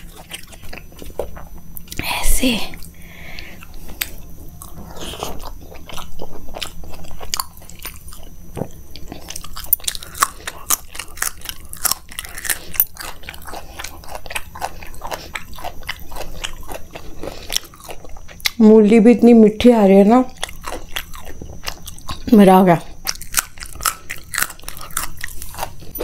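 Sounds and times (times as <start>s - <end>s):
chewing food: 0.0s - 2.0s, 2.7s - 18.6s, 20.2s - 26.0s
crunching raw radish: 3.6s - 18.6s, 20.3s - 26.0s.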